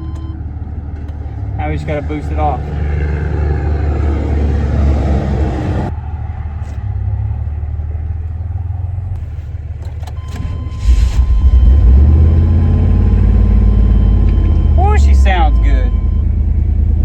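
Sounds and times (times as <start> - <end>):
engine starting and rumbling: 0.0 - 17.0.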